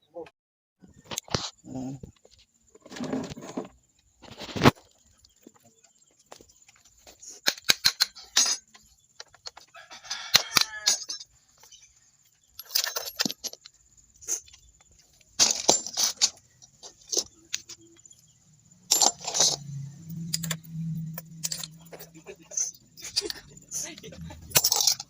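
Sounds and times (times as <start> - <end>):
metal tools clinking: 6.8 - 9.6, 10.2 - 25.0.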